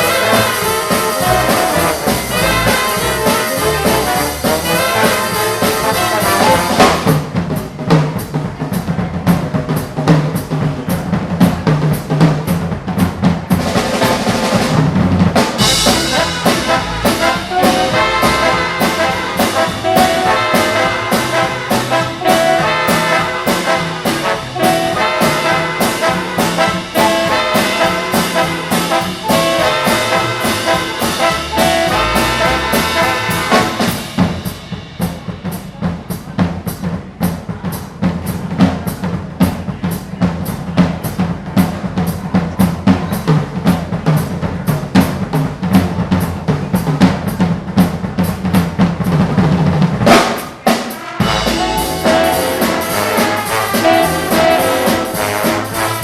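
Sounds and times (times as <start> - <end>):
trumpets and trombones: 0.0 - 7.2, 15.6 - 34.3, 50.1 - 56.0
big band playing swing: 0.0 - 56.0
drum kit: 0.0 - 56.0.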